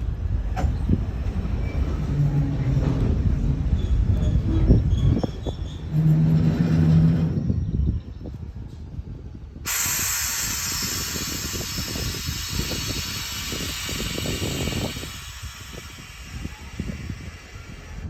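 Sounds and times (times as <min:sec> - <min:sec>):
low train rumble: 0:00.0 - 0:18.0
air brakes hissing: 0:09.6 - 0:18.0.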